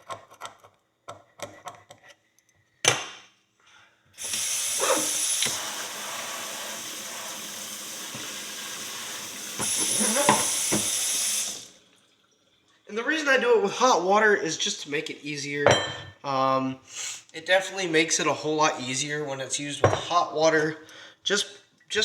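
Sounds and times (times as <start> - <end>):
tap water running onto metal: 4.2 - 11.8.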